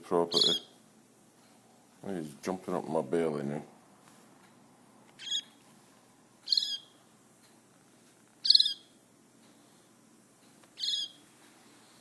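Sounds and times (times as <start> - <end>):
baby bird chirping: 0.3 - 0.8, 5.2 - 5.6, 6.4 - 7.0, 8.4 - 9.0, 10.8 - 11.2.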